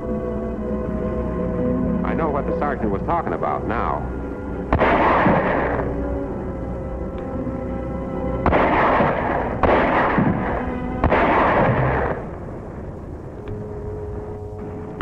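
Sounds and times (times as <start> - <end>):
dramatic orchestral music: 0.0 - 15.0
shellfire blasts: 4.7 - 6.0, 8.4 - 12.5.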